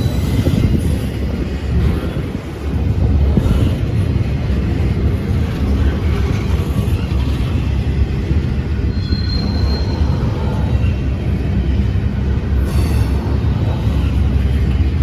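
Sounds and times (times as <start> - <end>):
train rumbling past: 0.0 - 15.0
faint high squeal: 8.9 - 10.3.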